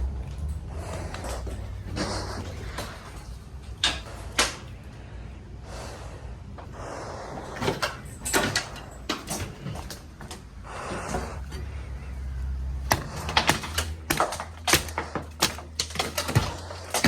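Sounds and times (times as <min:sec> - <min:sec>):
low background rumble: 0:00.0 - 0:17.0
knocks and crashes of demolition: 0:07.5 - 0:17.0.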